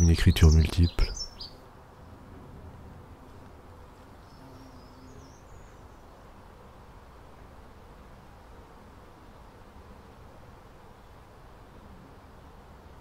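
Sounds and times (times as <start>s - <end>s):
bird chirping faintly: 0.0s - 1.6s
faint outdoor ambience: 0.0s - 13.0s.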